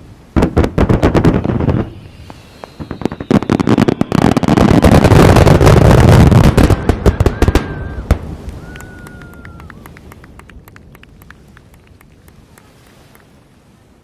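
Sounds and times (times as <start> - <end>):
thin whistling tones: 2.0 - 4.7.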